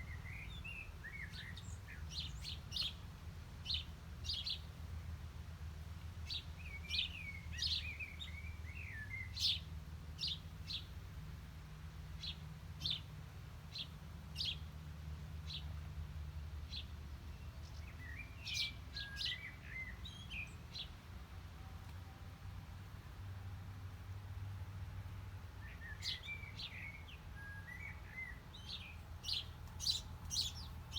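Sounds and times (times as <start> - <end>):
bird twittering song: 0.0 - 4.7, 6.3 - 10.9, 13.7 - 14.7, 16.7 - 20.9, 25.6 - 30.9
small birds chirping: 0.0 - 4.8, 6.2 - 11.0, 12.1 - 14.7, 15.4 - 15.9, 16.6 - 21.0, 25.5 - 30.9.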